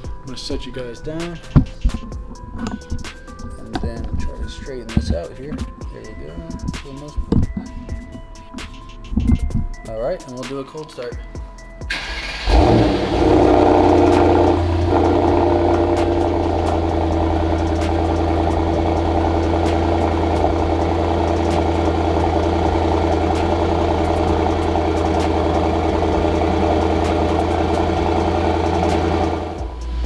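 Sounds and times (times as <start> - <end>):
car engine starting and idling: 11.9 - 30.0.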